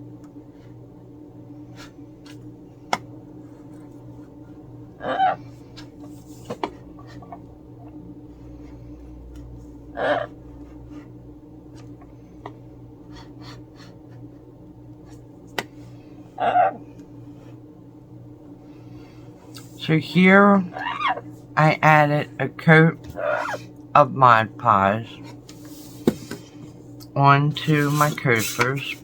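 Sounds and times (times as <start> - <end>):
steady low hum: 0.0 - 29.0
parrot calls: 5.0 - 5.5, 9.9 - 10.4, 16.4 - 16.8, 20.6 - 21.3, 23.1 - 23.6.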